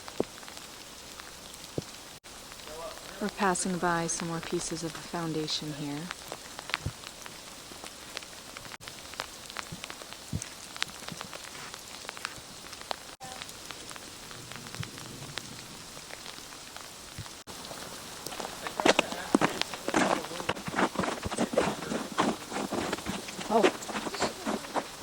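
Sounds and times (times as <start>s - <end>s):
sleet pattering on dry leaves: 0.0s - 25.0s.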